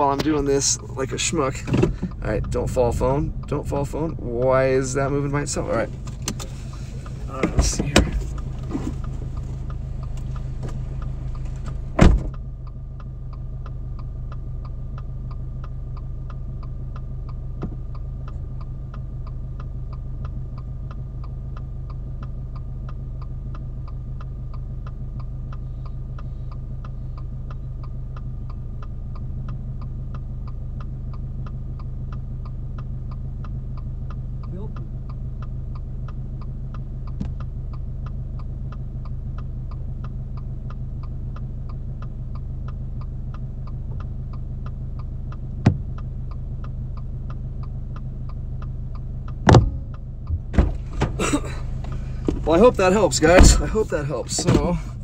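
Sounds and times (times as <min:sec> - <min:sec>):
car engine idling: 0:00.0 - 0:55.0
regular ticking: 0:00.0 - 0:55.0
car door shutting: 0:01.5 - 0:02.4, 0:05.5 - 0:12.4, 0:45.6 - 0:45.9, 0:49.4 - 0:55.0.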